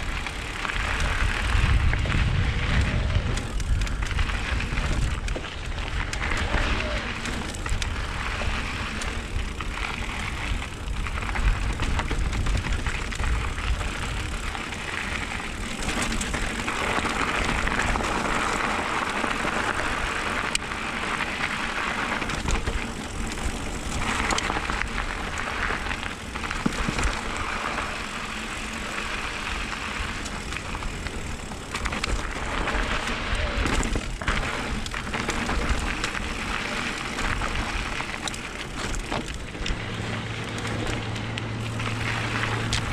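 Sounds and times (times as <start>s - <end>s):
bike clicking and rattling: 0.0s - 42.9s
bike tyres hissing over gravel: 0.0s - 42.9s
wind on microphone: 0.8s - 7.2s.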